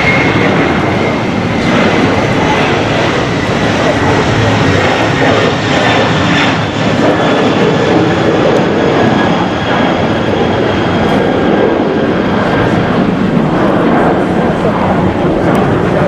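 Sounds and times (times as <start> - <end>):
jet airliner taking off: 0.0 - 16.0.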